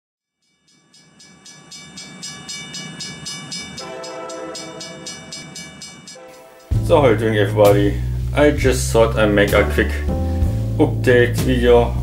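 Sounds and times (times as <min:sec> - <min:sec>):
train rhythmic clicking: 0:00.7 - 0:06.8
train horn: 0:03.8 - 0:05.4, 0:06.2 - 0:06.8.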